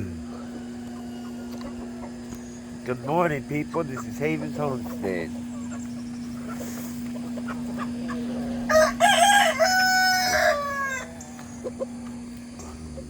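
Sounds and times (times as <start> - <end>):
low hum: 0.0 - 13.0
rooster crowing: 0.2 - 2.6, 8.4 - 11.3.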